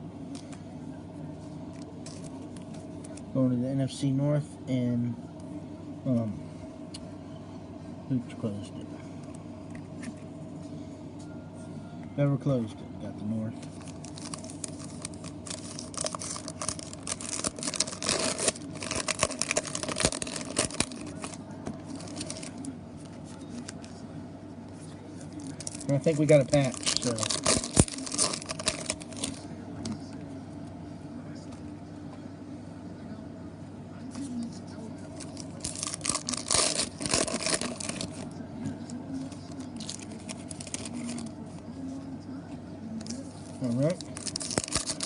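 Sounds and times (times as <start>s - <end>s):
plastic wrappers crackling: 13.7s - 22.6s, 25.4s - 29.4s, 35.2s - 38.2s, 39.5s - 41.3s, 43.0s - 45.0s.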